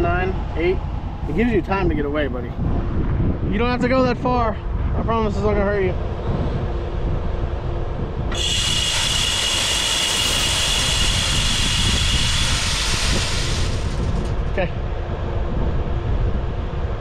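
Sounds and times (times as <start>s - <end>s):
wind rumble on microphone: 0.0s - 17.0s
feeder motor whine: 8.1s - 15.0s
corn spraying hiss: 8.3s - 14.7s.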